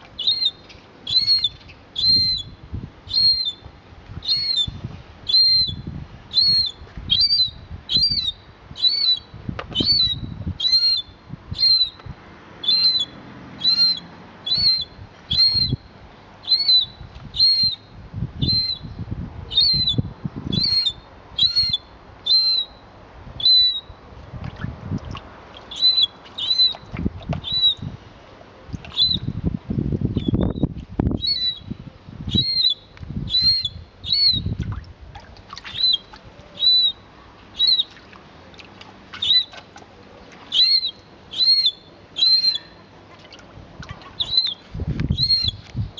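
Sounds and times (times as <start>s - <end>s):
bird chirping: 12.6s - 15.8s, 40.5s - 42.9s, 44.2s - 45.8s.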